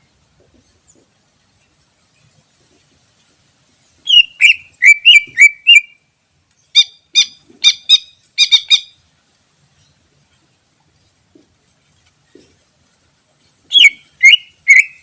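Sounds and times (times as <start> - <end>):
bird chattering: 4.0 - 6.0, 13.7 - 15.0
bird whistling notes: 4.0 - 6.0, 13.7 - 15.0.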